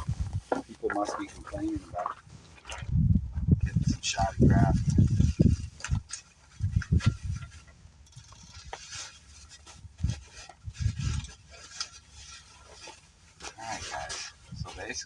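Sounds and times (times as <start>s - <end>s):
wind buffeting microphone: 0.0s - 8.8s, 9.7s - 11.4s, 14.4s - 15.0s
bubble wrap rustling: 4.7s - 15.0s.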